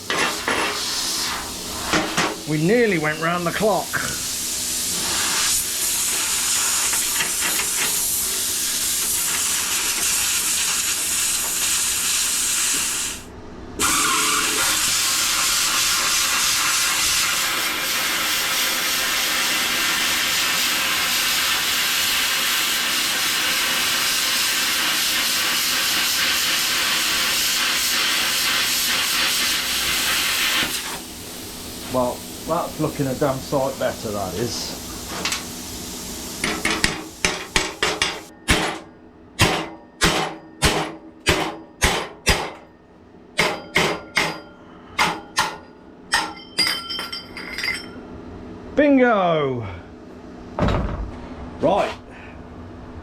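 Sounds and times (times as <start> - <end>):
plasma cutter hissing: 0.0 - 38.3.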